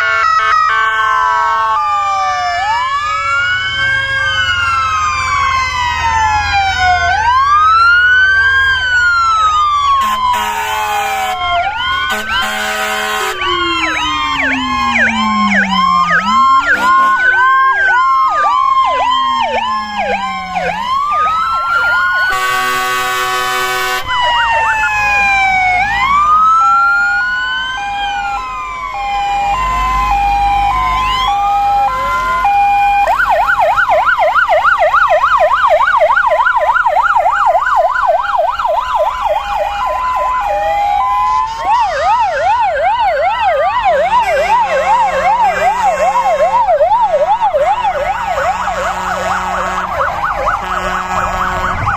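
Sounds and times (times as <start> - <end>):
emergency vehicle sirens wailing: 0.0 - 51.9
siren yelp: 0.0 - 51.9
horn blast: 10.0 - 18.0, 22.2 - 24.1, 44.1 - 46.6, 48.3 - 51.9.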